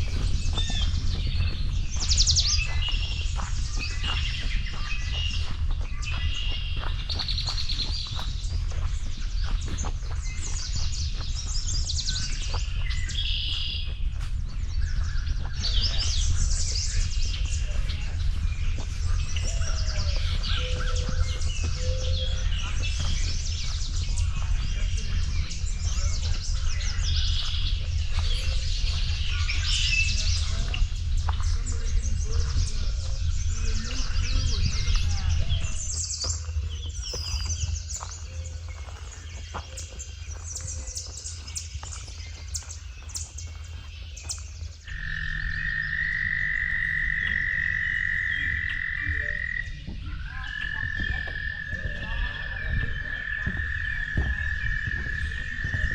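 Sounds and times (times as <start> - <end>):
low rumble: 0.0 - 55.9
songbirds chirping and trilling: 0.0 - 55.9
frog trilling: 44.9 - 55.9.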